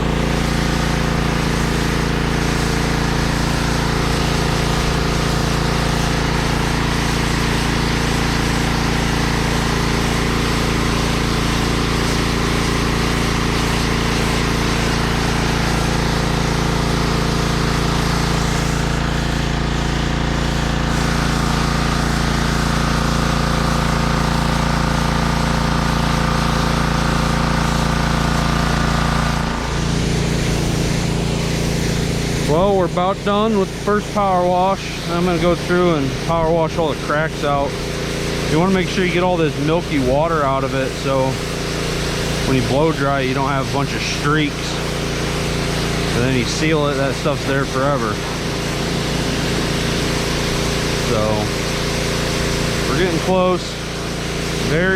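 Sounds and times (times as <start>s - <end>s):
pressure washer spraying concrete: 0.0s - 54.9s.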